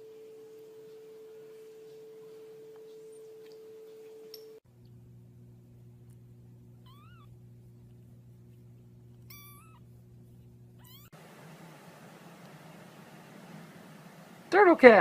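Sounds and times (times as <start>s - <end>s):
steady low hum: 0.0s - 15.0s
cat meowing: 6.8s - 7.3s, 9.3s - 9.8s, 10.8s - 11.2s.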